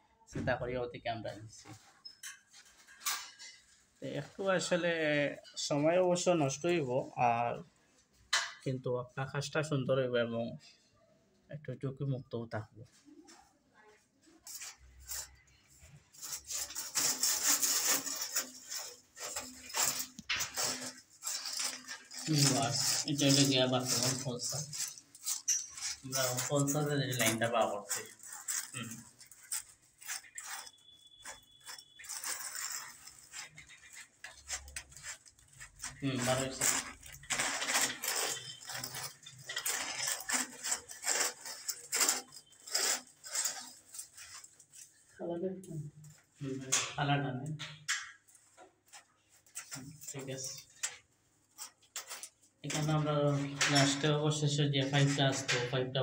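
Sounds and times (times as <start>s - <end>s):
rasping scraping strokes: 14.2s - 45.2s.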